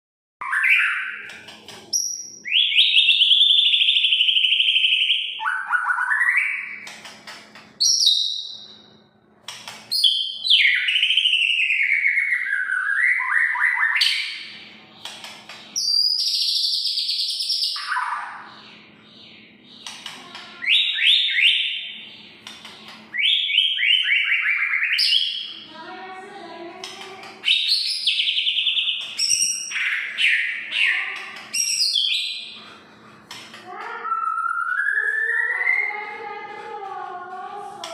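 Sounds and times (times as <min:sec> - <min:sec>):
songbird singing whistles and trills: 0:02.0 - 0:06.9, 0:07.8 - 0:08.8, 0:10.0 - 0:14.5, 0:15.8 - 0:22.0, 0:23.1 - 0:25.6, 0:27.4 - 0:32.6, 0:34.0 - 0:36.0.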